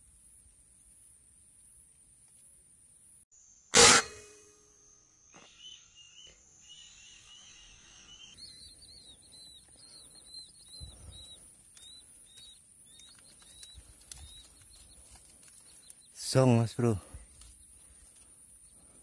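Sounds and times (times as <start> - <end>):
faint bird chirps: 4.6 - 19.0.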